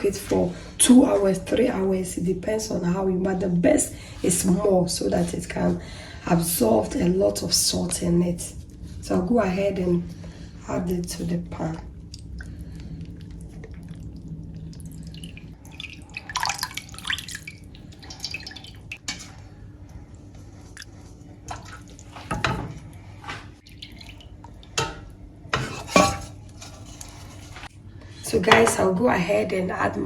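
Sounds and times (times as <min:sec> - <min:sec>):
water dripping and splashing: 0:11.8 - 0:19.4, 0:20.7 - 0:22.5, 0:23.6 - 0:25.1.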